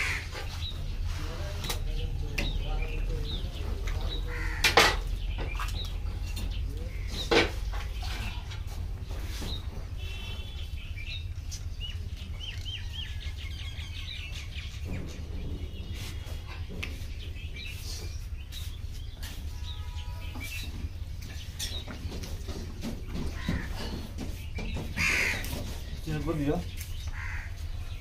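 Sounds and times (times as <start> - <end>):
birds chirping: 0.0 - 28.0
steady low rumble: 0.0 - 28.0
sharp clicks and knocks: 14.7 - 17.3.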